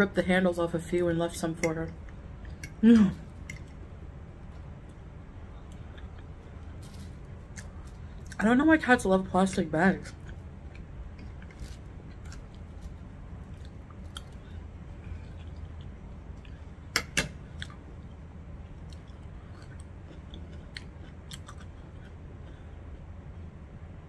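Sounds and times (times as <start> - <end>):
steady low hum: 0.0 - 24.0
person chewing: 4.4 - 8.4, 10.1 - 18.2, 18.8 - 23.1.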